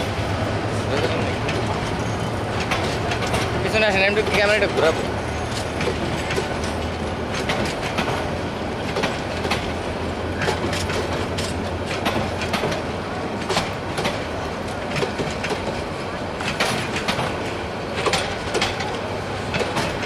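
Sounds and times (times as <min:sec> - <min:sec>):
train wheels clacking over rail joints: 0:00.0 - 0:20.0.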